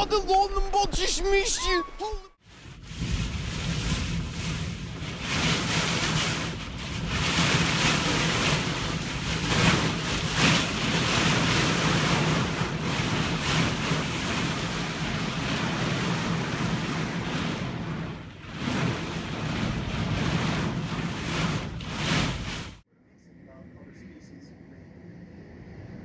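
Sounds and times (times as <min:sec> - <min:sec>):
rushing storm noise: 0:00.0 - 0:22.8
wind buffeting microphone: 0:02.4 - 0:22.8.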